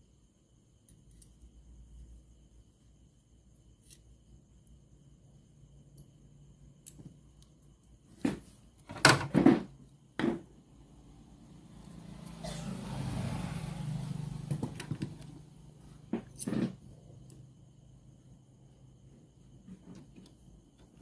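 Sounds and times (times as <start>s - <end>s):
low hum with hiss: 0.0s - 21.0s.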